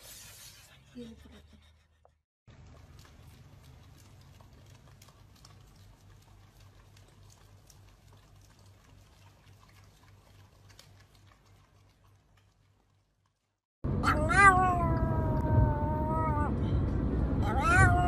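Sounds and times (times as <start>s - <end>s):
dogs licking wetly: 2.5s - 13.6s.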